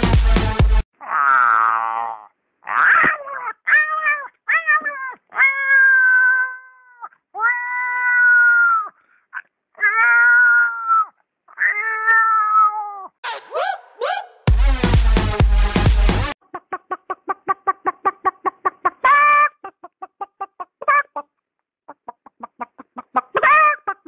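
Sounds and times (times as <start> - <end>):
person imitating cat meows: 1.0 - 9.0, 9.8 - 13.2.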